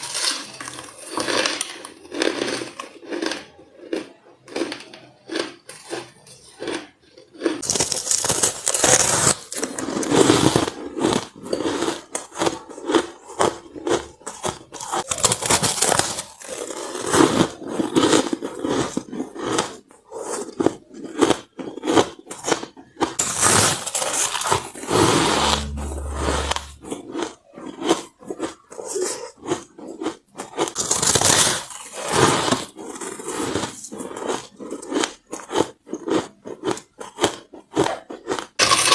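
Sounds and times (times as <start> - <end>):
shaved ice being crunched: 0.0 - 19.8, 23.2 - 25.8, 30.6 - 38.9.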